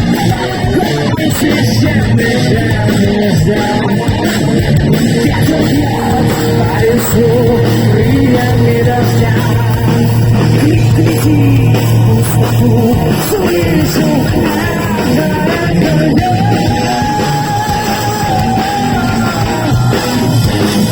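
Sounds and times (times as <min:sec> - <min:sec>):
bass guitar: 0:00.0 - 0:20.9
distorted electric guitar: 0:00.0 - 0:20.9
drums: 0:00.0 - 0:20.9.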